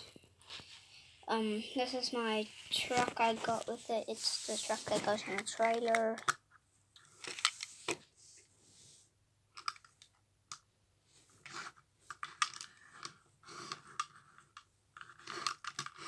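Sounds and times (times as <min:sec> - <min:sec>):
soft rustling: 0:00.0 - 0:06.2
plastic toy vehicles clicking: 0:05.0 - 0:06.4, 0:09.5 - 0:10.6, 0:11.4 - 0:16.0.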